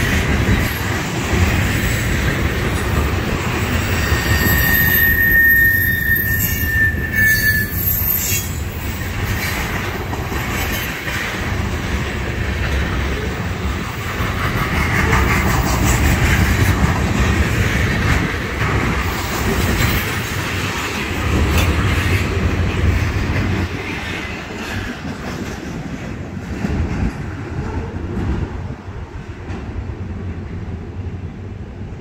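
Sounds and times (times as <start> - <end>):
freight train rumbling past: 0.0 - 32.0
wheels clacking over rail joints: 8.2 - 28.4.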